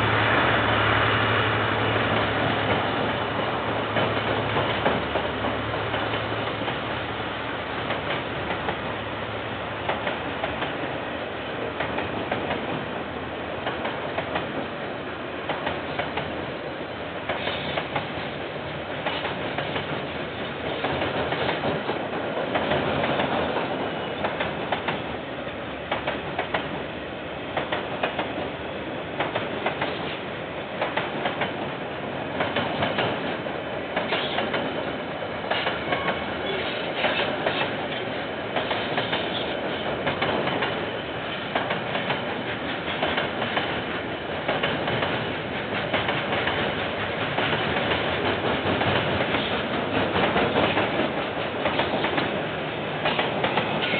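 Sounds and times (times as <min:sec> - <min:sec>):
train wheels rumbling on rails: 0:00.0 - 0:53.9
wheels clickety-clack: 0:27.6 - 0:28.5, 0:34.0 - 0:34.9, 0:35.5 - 0:52.4, 0:53.0 - 0:53.9.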